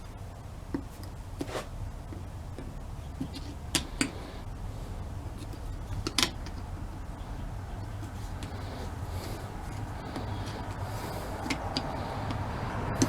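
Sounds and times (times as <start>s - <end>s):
low background hum: 0.0s - 13.0s
metal parts clicking and clinking: 5.4s - 8.6s.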